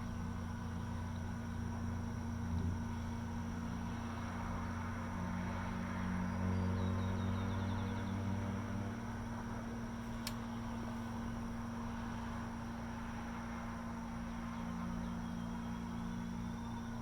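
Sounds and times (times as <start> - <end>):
distant machinery humming: 0.0 - 17.0.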